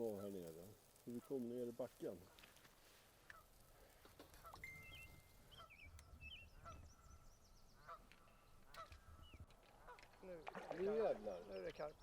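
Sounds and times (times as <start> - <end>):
bird calls: 3.3 - 12.0.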